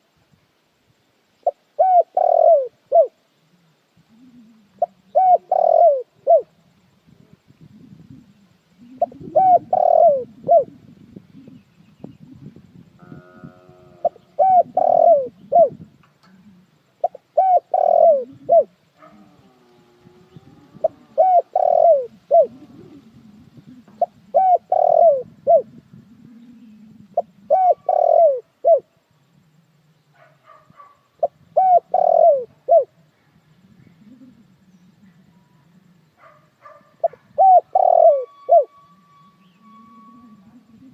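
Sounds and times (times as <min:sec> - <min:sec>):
dove cooing: 0:01.4 - 0:29.0, 0:31.2 - 0:40.9
faint low rumble: 0:18.0 - 0:30.2.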